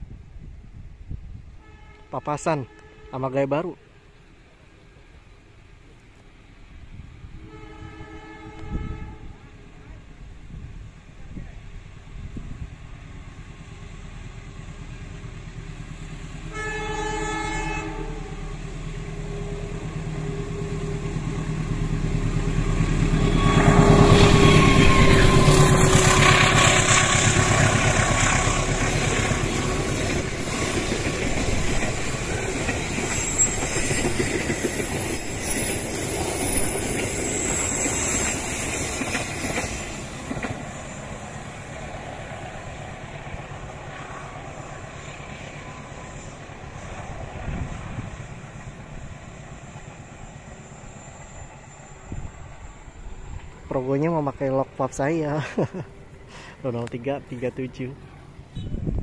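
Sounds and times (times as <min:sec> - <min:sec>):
diesel locomotive engine passing: 0:00.0 - 0:59.0
train horn blast: 0:01.5 - 0:03.6, 0:07.3 - 0:09.7, 0:16.4 - 0:21.4, 0:22.3 - 0:28.7.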